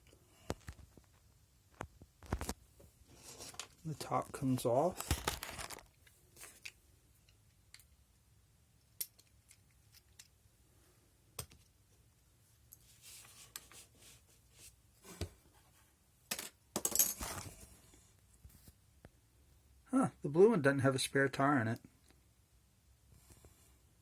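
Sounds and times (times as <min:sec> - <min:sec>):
clattering handling noise: 0:01.8 - 0:06.8, 0:16.3 - 0:17.7.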